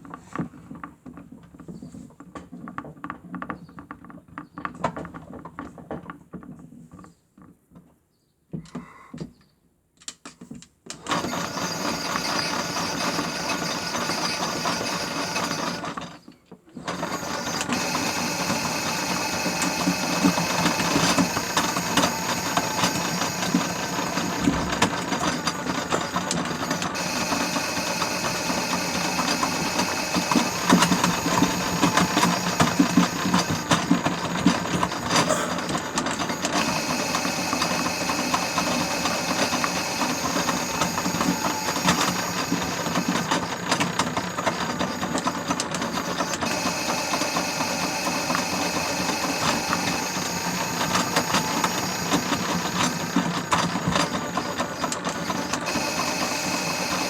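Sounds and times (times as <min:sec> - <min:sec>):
toy washing machine motor whine: 0:11.0 - 0:16.2, 0:16.8 - 0:57.0.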